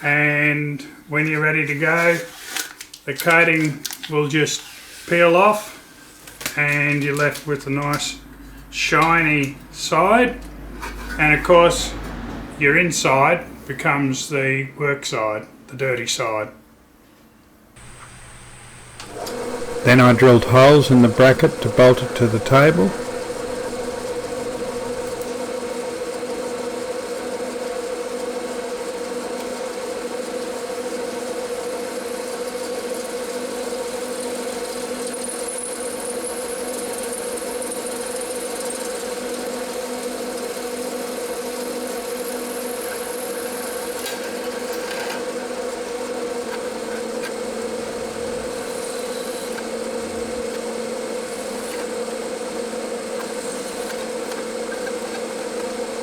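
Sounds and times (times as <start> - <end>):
electric drill drilling metal: 17.8 - 19.8.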